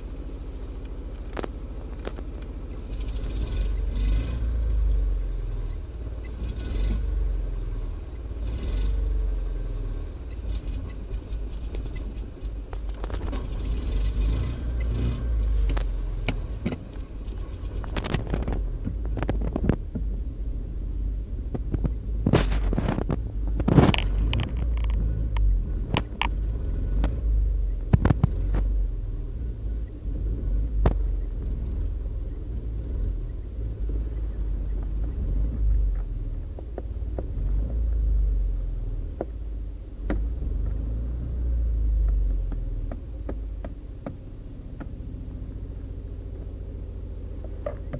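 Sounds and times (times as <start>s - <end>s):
car engine rumbling: 0.0s - 47.9s
sharp clicks and knocks: 0.8s - 2.6s, 10.3s - 15.0s, 15.6s - 20.2s, 21.5s - 26.4s, 27.0s - 28.7s, 40.0s - 40.8s, 42.0s - 45.0s, 47.4s - 47.9s.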